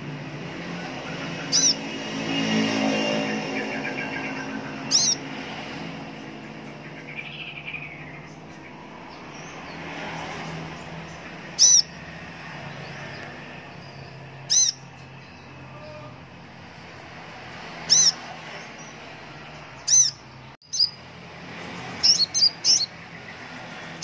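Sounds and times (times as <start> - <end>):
bird high-pitched calls: 0.7 - 5.4, 6.3 - 16.2, 17.7 - 21.0, 21.8 - 23.4
faint bird chirps: 1.1 - 1.8.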